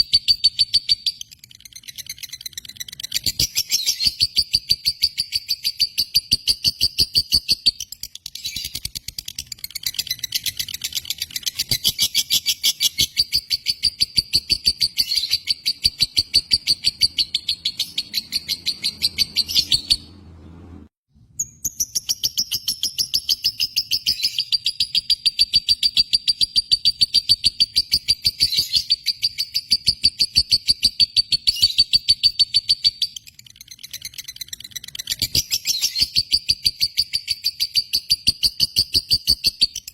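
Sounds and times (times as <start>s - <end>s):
lovebird chattering: 0.0s - 20.1s.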